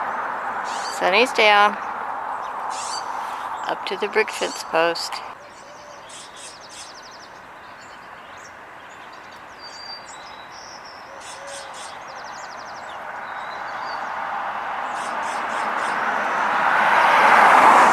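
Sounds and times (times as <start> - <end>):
vehicle approaching: 0.0 - 5.4, 11.2 - 17.9
songbirds chirping: 0.0 - 17.7
rattling bird trills: 0.6 - 1.0, 2.6 - 3.7.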